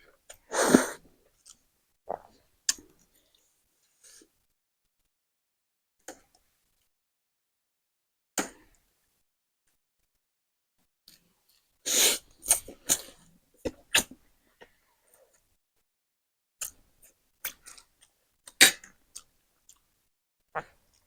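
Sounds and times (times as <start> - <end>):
slurping or coughing: 0.4 - 1.0, 11.9 - 14.2
mouth clicks while eating: 16.6 - 19.9.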